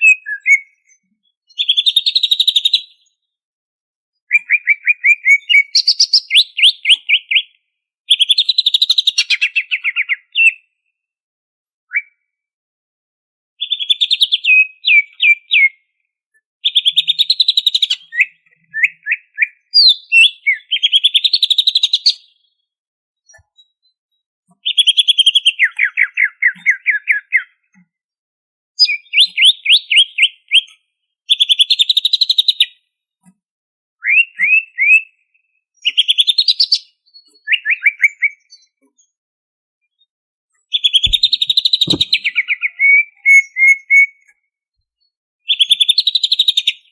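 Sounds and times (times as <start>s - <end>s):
bird singing trills and whistles: 0.0s - 3.2s, 4.2s - 10.6s, 11.9s - 12.3s, 13.6s - 15.9s, 16.6s - 22.4s, 24.6s - 27.7s, 28.8s - 32.8s, 34.0s - 39.2s, 40.7s - 44.3s, 45.0s - 46.9s.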